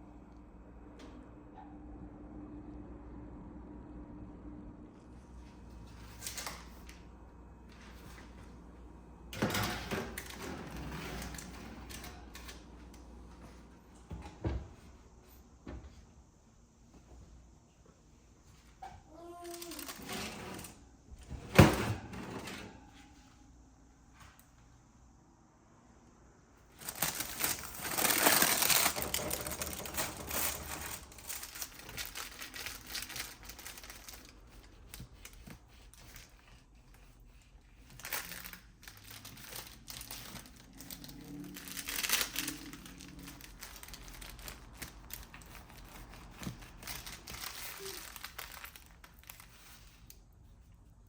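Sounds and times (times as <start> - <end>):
crinkling and rustling: 18.5 - 23.1, 26.7 - 51.0.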